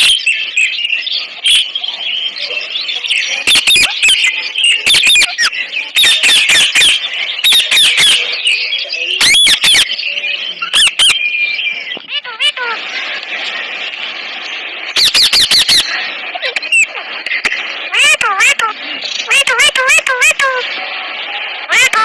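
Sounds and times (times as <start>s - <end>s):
high chatter of bird calls: 0.0s - 22.0s
parrots screeching: 3.2s - 8.4s, 9.2s - 10.0s, 10.6s - 11.3s, 11.9s - 14.1s, 14.7s - 17.1s, 17.9s - 20.6s, 21.7s - 22.0s.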